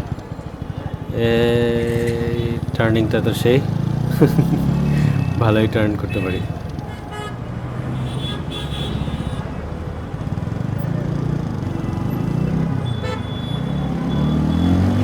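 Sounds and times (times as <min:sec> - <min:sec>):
motorcycle exhaust note: 0:01.0 - 0:06.8.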